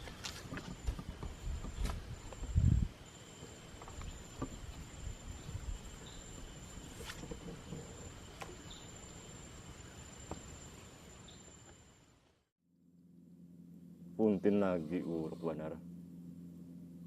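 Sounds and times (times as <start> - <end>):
insects calling high-pitched: 0.0 - 12.1.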